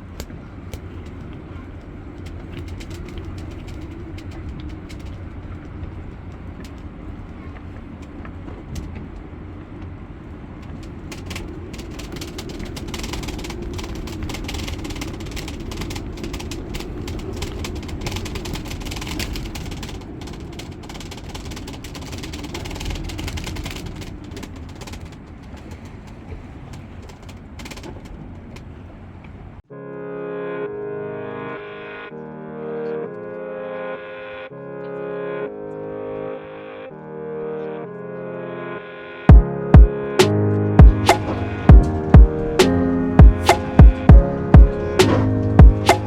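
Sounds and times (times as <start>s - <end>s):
rain and hail striking boat: 0.0s - 29.5s, 39.3s - 46.0s
storm wind buffeting microphone: 0.0s - 29.6s.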